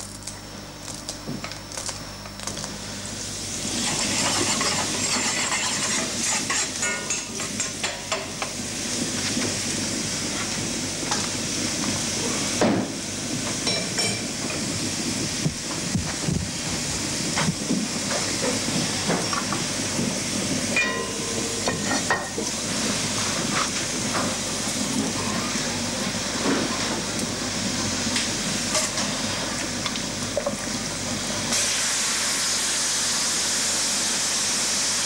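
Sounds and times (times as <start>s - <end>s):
pot sizzling and crackling: 0.0s - 35.0s
metal scraping against pot: 3.8s - 7.3s.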